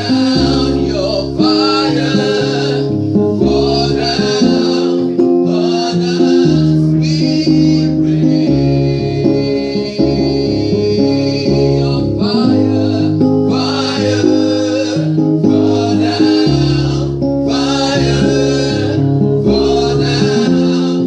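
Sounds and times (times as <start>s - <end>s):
guitar and bass accompaniment: 0.0s - 21.0s
voices singing gospel song: 0.0s - 21.0s.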